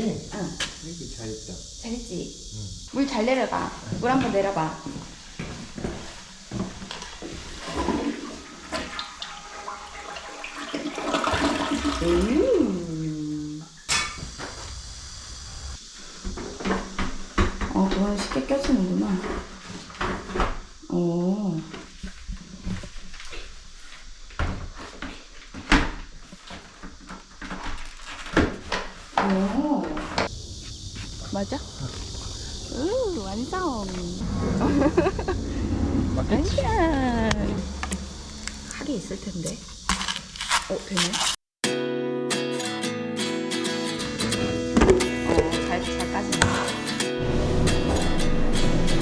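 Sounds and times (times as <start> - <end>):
toilet flushing: 6.0 - 12.9.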